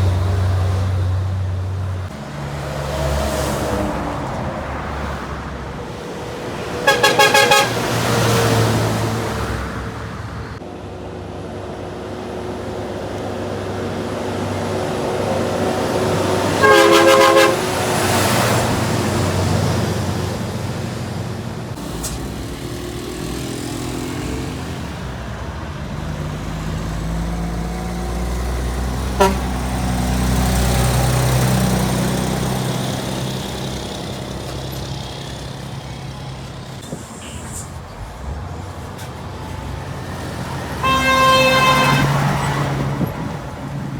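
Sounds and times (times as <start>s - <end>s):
heavy trucks passing: 0.0s - 43.9s
truck horn: 6.0s - 9.0s, 16.2s - 18.8s, 28.2s - 36.0s, 40.1s - 43.3s.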